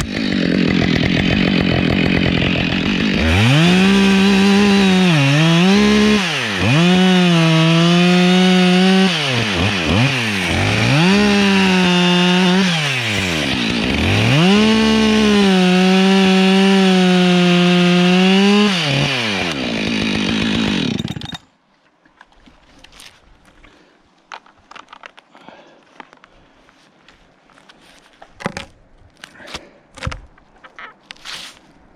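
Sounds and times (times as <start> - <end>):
chainsaw cutting wood: 0.0 - 21.5.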